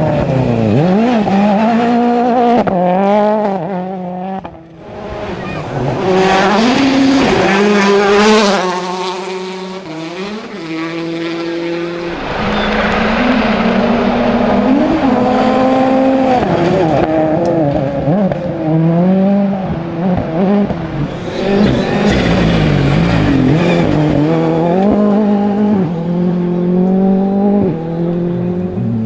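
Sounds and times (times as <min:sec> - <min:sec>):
rally car engines revving: 0:00.0 - 0:29.0
deep engine rumble: 0:11.1 - 0:17.3.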